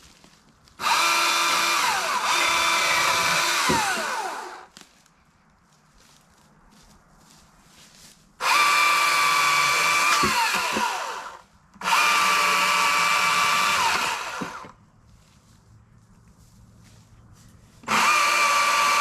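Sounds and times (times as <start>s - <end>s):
battery chainsaw whining: 0.8s - 4.7s, 8.4s - 14.8s, 17.8s - 19.0s.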